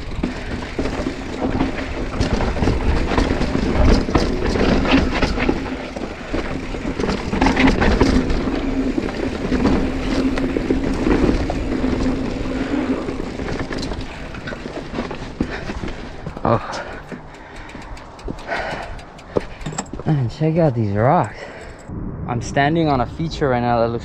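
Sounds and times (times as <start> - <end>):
bike knocking and rattling: 0.0 - 20.2
bike tyres on rocky trail: 0.0 - 20.6
wind buffeting microphone: 0.0 - 24.0.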